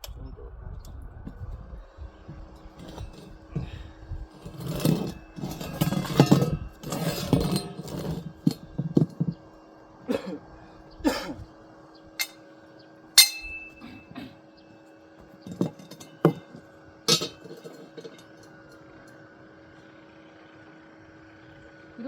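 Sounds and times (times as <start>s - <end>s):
hard parts clinking and knocking: 2.4s - 3.7s, 4.3s - 9.5s, 12.2s - 12.5s, 13.2s - 18.8s.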